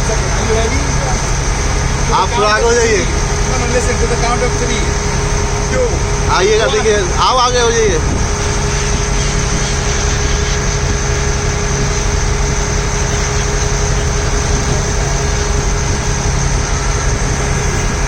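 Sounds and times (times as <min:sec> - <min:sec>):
ferry engine humming: 0:00.0 - 0:18.0.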